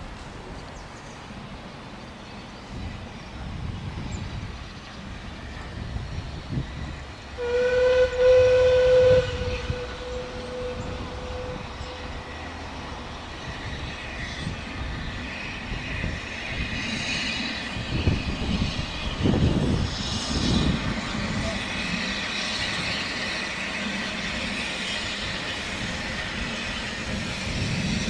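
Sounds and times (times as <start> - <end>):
train rumbling: 0.0 - 28.0
steam hiss: 1.3 - 28.0
steam locomotive whistle: 7.3 - 12.4.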